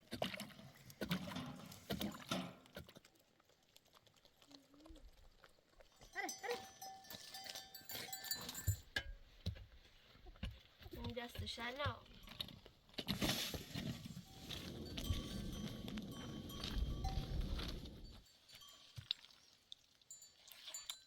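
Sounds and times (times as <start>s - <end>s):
livestock bells ringing: 6.0s - 8.9s, 14.2s - 19.3s.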